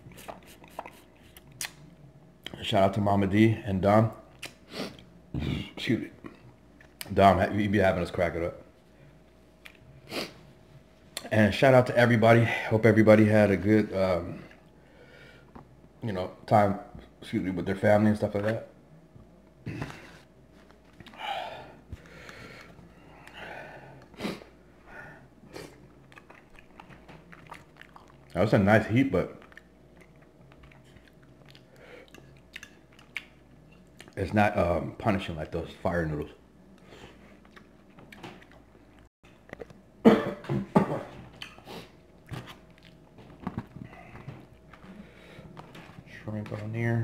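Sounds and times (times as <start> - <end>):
mouth and chewing sounds: 0.0 - 2.6, 25.5 - 28.4, 29.2 - 34.2, 36.7 - 39.8, 41.3 - 46.0
sharp sniffs: 10.1 - 10.4
man breathing hard: 21.1 - 25.3
man coughing: 40.0 - 41.1.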